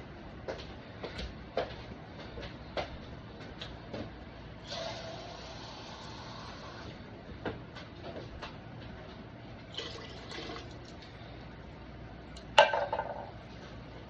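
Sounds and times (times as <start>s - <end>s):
water pouring into a pot: 9.7s - 11.2s.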